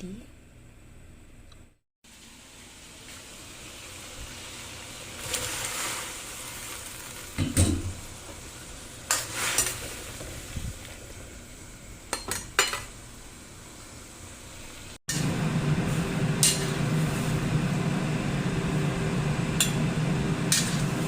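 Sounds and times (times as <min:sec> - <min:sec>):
pot of water hissing: 0:02.1 - 0:12.2, 0:13.0 - 0:21.0
pots and utensils clinking: 0:07.0 - 0:08.0, 0:12.1 - 0:13.0, 0:16.4 - 0:16.9, 0:19.6 - 0:19.8, 0:20.5 - 0:21.0.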